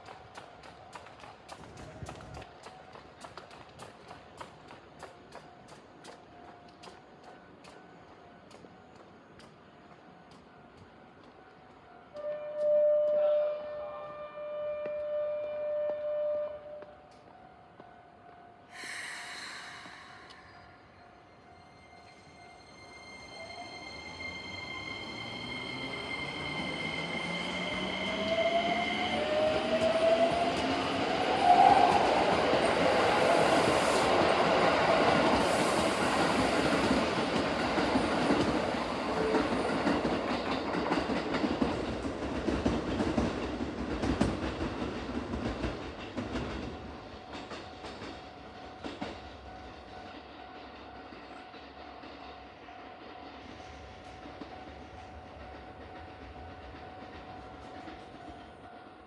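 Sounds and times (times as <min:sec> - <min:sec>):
train wheels clattering: 0:24.2 - 0:58.9.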